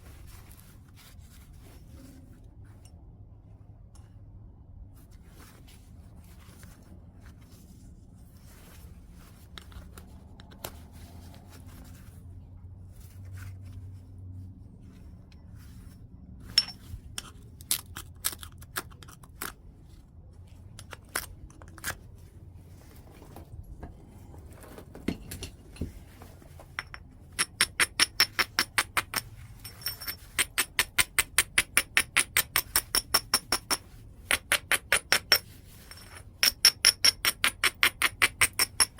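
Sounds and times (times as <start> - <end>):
stone clicking on stone: 26.8 - 29.2.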